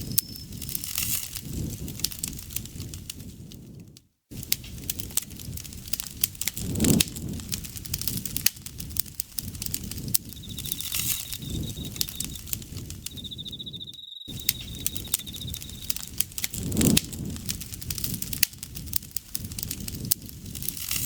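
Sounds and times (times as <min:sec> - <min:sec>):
high insect trill: 0:00.0 - 0:00.8, 0:10.2 - 0:16.2
campfire crackling and popping: 0:00.0 - 0:21.0
low rush of flame: 0:00.1 - 0:13.3, 0:14.3 - 0:21.0.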